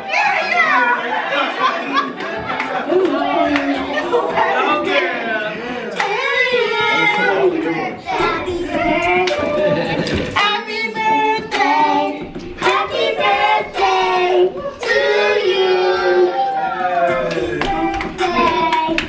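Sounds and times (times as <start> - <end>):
voices singing: 1.9 - 19.0
hand claps: 9.2 - 13.0, 17.2 - 19.0.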